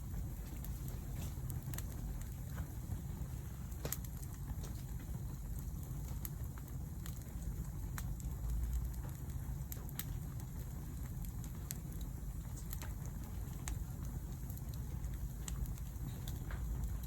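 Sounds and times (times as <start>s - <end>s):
campfire crackling and popping: 0.0s - 17.0s
low fire rumble: 0.0s - 17.0s.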